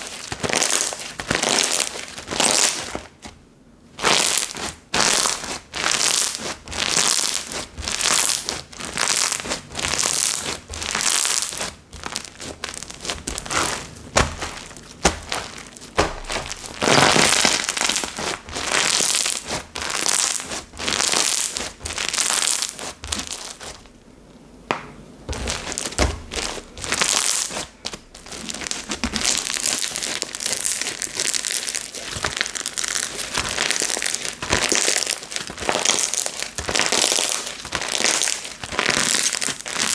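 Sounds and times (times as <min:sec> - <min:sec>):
slime squishing and crackling: 0:00.0 - 0:03.3, 0:04.0 - 0:24.0, 0:25.3 - 0:39.9.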